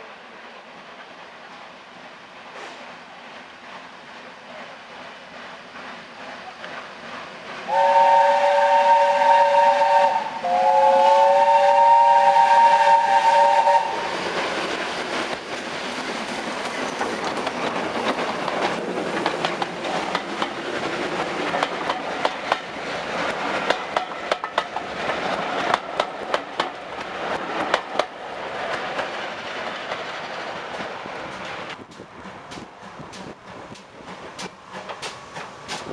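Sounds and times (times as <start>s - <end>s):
train rumbling past: 0.0s - 35.9s
steam locomotive whistle: 7.7s - 14.2s
wheels clicking over rail joints: 14.0s - 35.9s.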